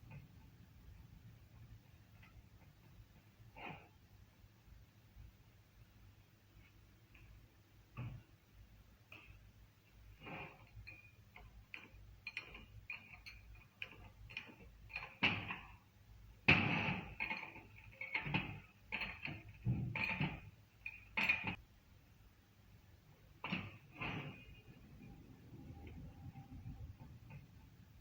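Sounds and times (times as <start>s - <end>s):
metal tools clicking and clanking: 10.2s - 15.9s, 16.5s - 21.6s.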